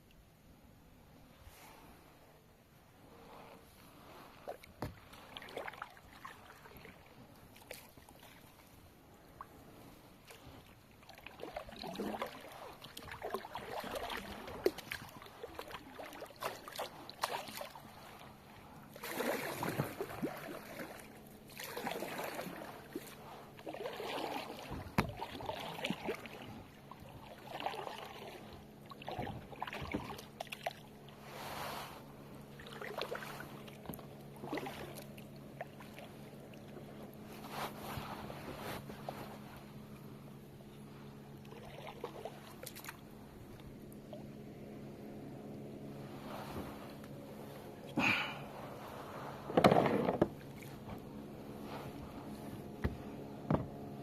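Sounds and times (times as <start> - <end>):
kayak paddle splashing in water: 4.5 - 8.7, 10.2 - 18.3, 18.9 - 36.7, 41.4 - 44.2
paddle knocks: 49.5 - 50.4, 52.8 - 53.8.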